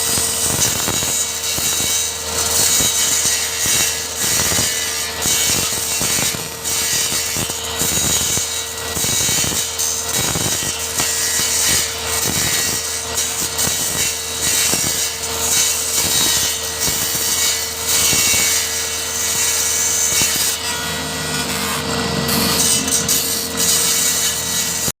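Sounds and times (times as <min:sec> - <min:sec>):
circular saw cutting laminate: 0:00.0 - 0:25.0.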